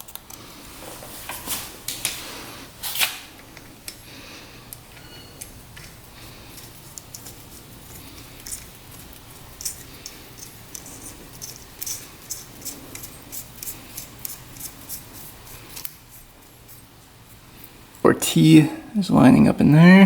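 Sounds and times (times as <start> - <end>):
small metal scrapes: 5.0 - 16.9.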